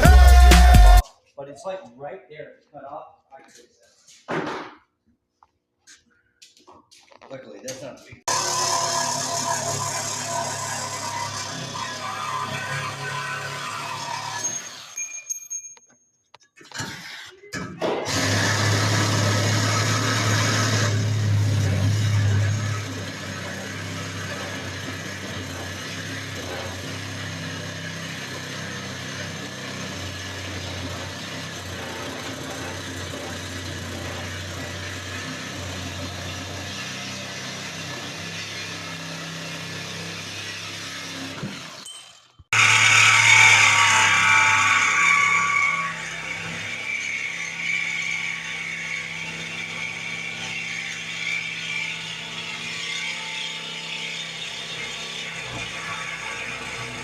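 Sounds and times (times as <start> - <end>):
engine mechanical clatter: 18.1 - 38.1.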